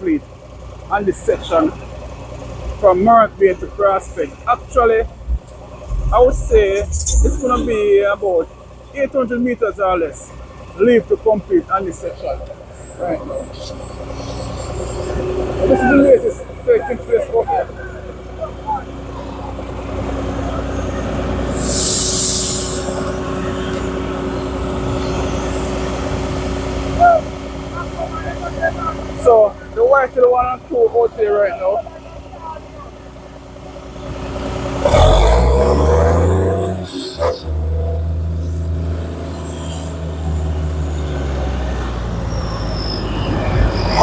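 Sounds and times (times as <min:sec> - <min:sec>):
vehicle engine humming: 0:00.0 - 0:44.0
air release hiss: 0:21.5 - 0:23.2.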